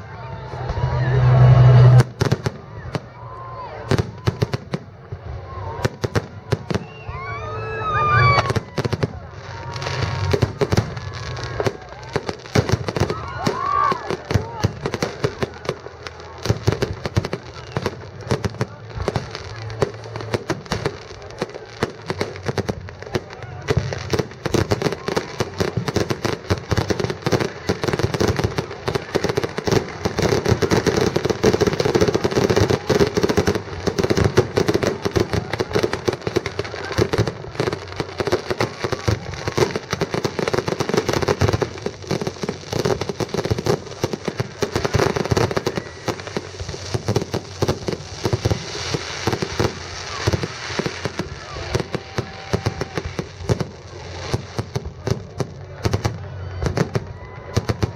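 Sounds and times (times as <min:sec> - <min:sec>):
fireworks bangs and crackles: 0:00.0 - 0:57.9.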